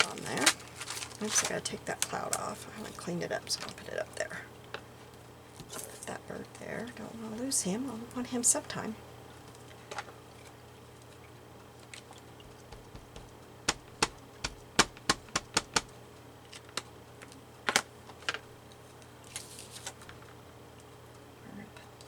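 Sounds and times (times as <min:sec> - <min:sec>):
sharp clicks and taps: 0:12.5 - 0:15.9.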